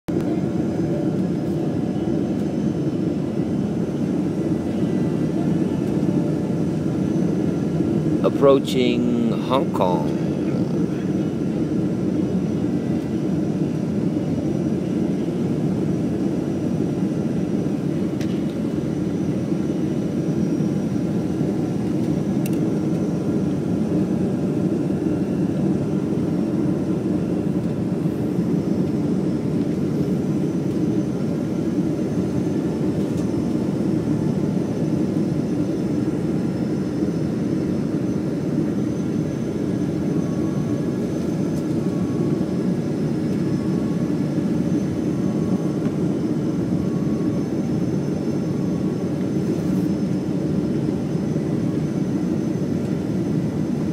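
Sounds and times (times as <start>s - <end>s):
airplane cabin noise: 0.1s - 53.9s.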